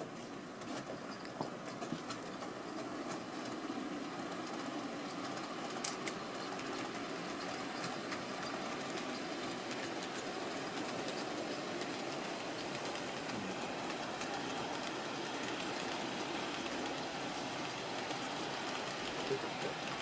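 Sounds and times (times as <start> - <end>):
model train wheels rumbling: 0.0 - 20.0.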